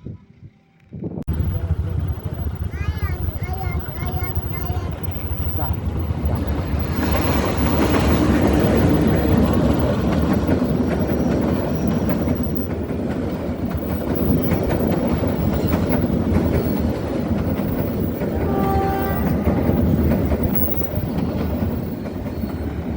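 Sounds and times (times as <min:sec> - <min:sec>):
train rumbling on rails: 0:00.4 - 0:22.9
wheels clicking over track: 0:01.3 - 0:22.9.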